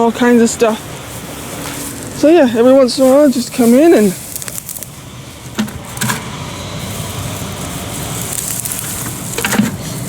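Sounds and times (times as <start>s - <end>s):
plants rustling and crackling: 0.0s - 10.0s
stems snapping: 4.2s - 6.3s, 7.5s - 9.8s.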